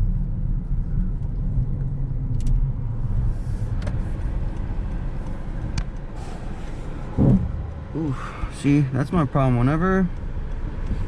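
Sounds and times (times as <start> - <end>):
engine and road noise: 0.0 - 11.0
faint light ticks: 3.8 - 6.1, 9.2 - 11.0.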